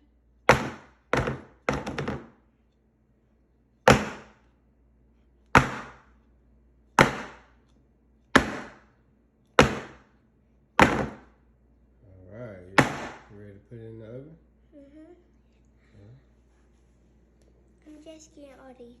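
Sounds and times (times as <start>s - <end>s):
pan knocking on counter: 0.5s - 2.3s, 10.8s - 11.2s.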